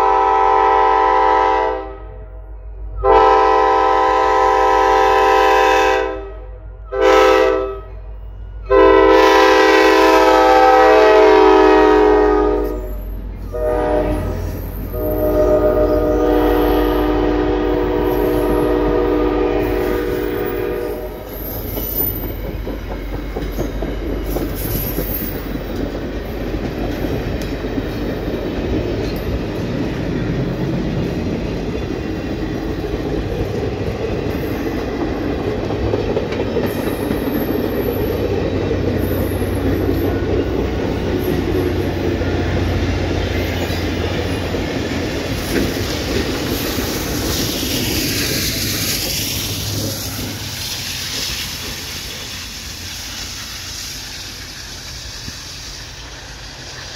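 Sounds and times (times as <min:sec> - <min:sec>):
locomotive air horn chord: 0:00.0 - 0:02.4, 0:03.0 - 0:21.4
wheels rumbling on rails: 0:07.9 - 0:56.9
clickety-clack over rail joints: 0:21.4 - 0:56.9.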